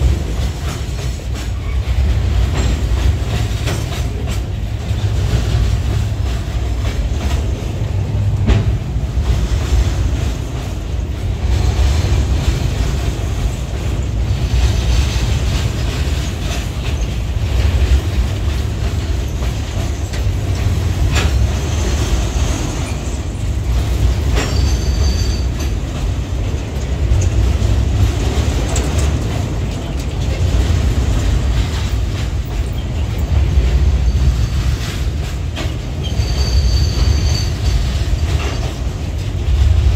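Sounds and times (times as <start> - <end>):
high-pitched wheel squeals: 24.4 - 25.6, 36.0 - 37.8.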